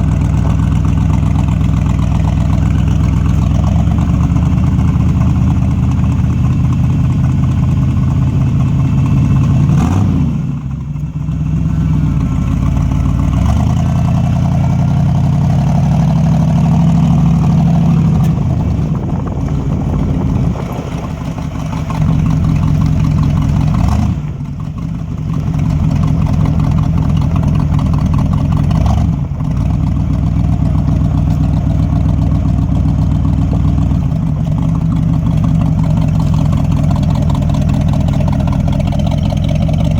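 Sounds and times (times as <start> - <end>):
engine deep burble: 0.0 - 39.9.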